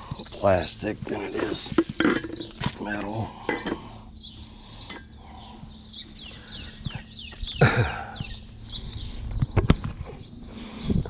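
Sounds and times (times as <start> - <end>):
birds chirping: 0.0 - 11.0
steady low hum: 0.0 - 11.0
clatter of junk being handled: 1.1 - 3.9.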